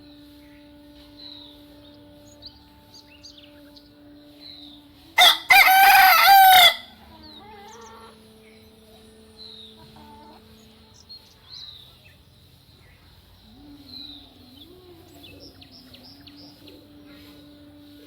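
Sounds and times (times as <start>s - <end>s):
faint low drawn-out tone: 0.0s - 5.2s
small birds chirping: 0.0s - 18.0s.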